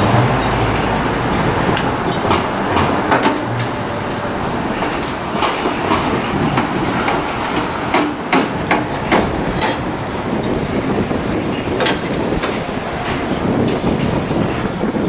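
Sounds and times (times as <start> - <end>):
passing train rumble: 0.0 - 15.0
train clickety-clack: 0.0 - 15.0
tool knocking on metal: 2.1 - 3.8, 5.4 - 9.8.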